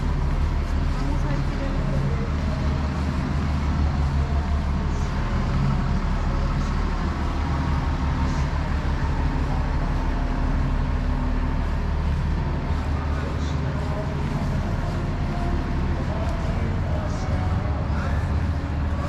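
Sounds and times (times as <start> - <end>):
city traffic rumble: 0.0 - 19.0
vehicle engine humming: 0.0 - 19.0.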